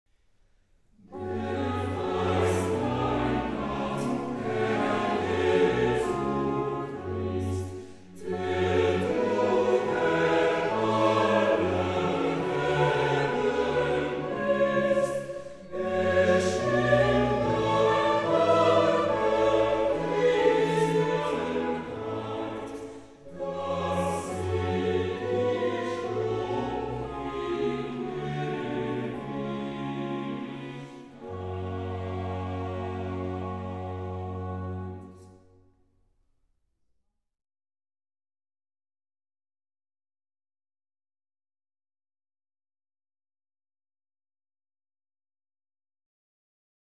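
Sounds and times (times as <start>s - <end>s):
orchestral music with choir: 0.8s - 35.8s.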